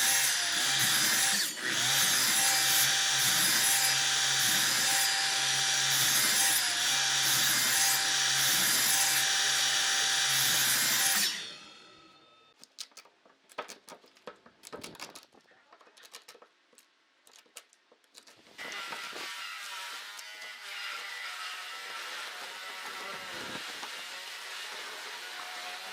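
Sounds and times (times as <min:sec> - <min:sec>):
power tool whining on wood: 0:00.0 - 0:12.3, 0:18.6 - 0:25.9.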